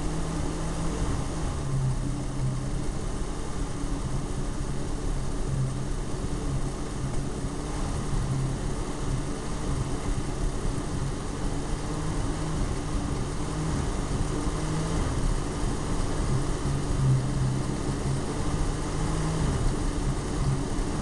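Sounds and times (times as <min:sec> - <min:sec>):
engine running unevenly: 0:00.0 - 0:21.0.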